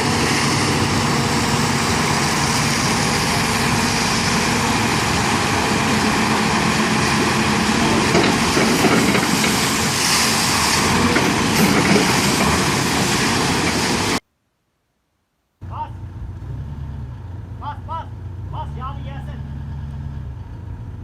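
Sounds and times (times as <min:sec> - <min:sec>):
construction machine engine running: 0:00.0 - 0:14.2
loud even hiss: 0:00.0 - 0:14.2.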